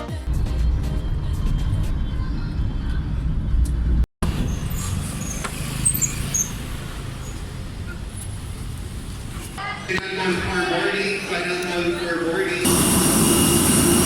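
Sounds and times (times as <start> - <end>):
low vehicle rumble: 0.3 - 9.9.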